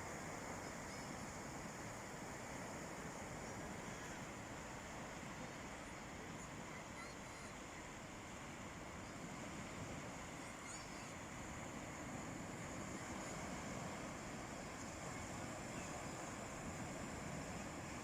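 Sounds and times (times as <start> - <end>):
sea waves on the shore: 0.0 - 18.0
faint high chirps: 6.4 - 7.8, 10.4 - 11.2.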